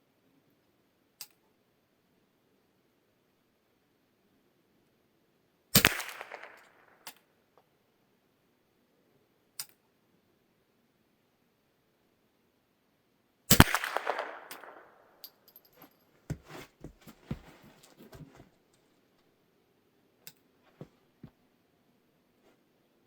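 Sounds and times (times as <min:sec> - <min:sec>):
rifle shot with echo: 0:05.8 - 0:06.6, 0:13.5 - 0:15.0.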